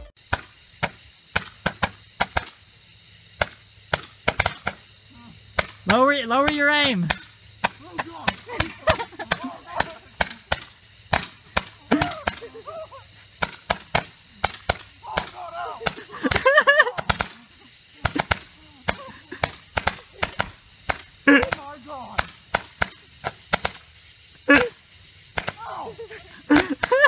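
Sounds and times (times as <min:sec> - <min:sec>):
firework rockets cracking: 0:00.0 - 0:25.7, 0:26.4 - 0:27.0
person yelling: 0:07.8 - 0:10.1, 0:15.0 - 0:17.2, 0:25.6 - 0:26.2.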